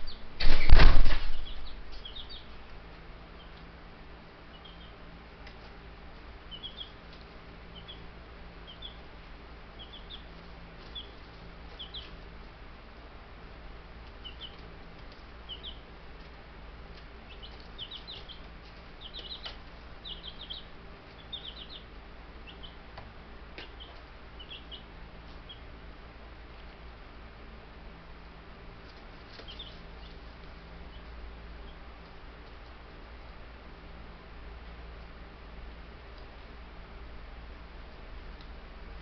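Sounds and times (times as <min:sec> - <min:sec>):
chicks peeping: 0:00.0 - 0:12.6, 0:14.0 - 0:25.8, 0:28.8 - 0:33.4.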